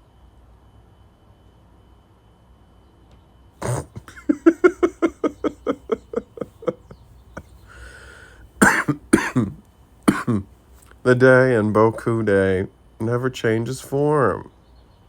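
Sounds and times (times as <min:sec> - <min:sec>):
man laughing: 0:03.6 - 0:10.4
man coughing: 0:03.6 - 0:10.5
breath: 0:07.6 - 0:08.6.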